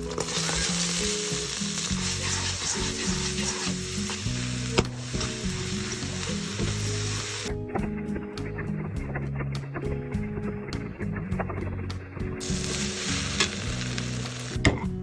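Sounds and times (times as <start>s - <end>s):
rice sizzling in a hot pan: 0.0s - 7.5s, 12.4s - 14.8s
background music: 0.0s - 15.0s.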